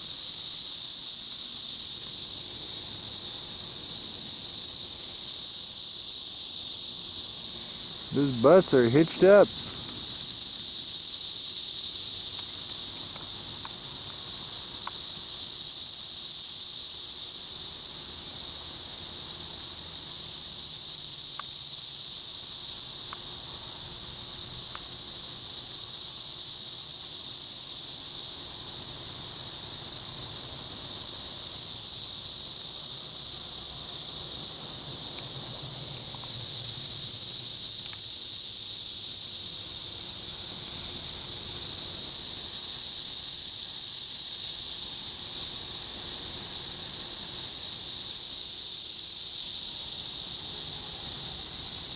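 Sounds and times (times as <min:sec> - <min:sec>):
cicadas droning: 0:00.0 - 0:51.9.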